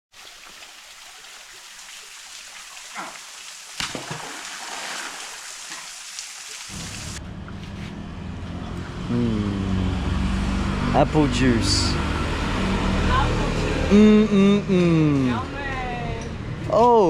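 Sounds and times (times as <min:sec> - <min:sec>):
rain-like hiss: 0:00.2 - 0:07.2
low engine-like hum: 0:06.8 - 0:17.0.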